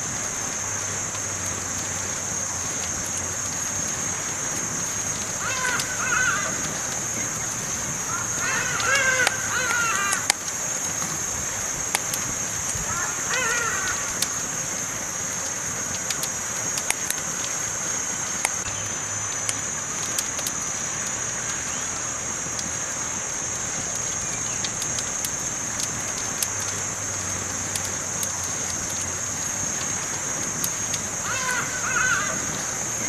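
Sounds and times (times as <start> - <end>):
campfire crackling and popping: 0.0 - 33.0
bird calling: 5.4 - 10.3, 12.8 - 14.3, 31.2 - 33.0.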